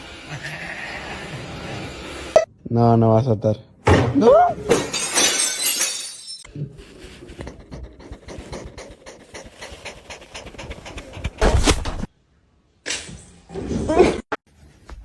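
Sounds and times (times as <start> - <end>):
pet panting: 6.8 - 12.1.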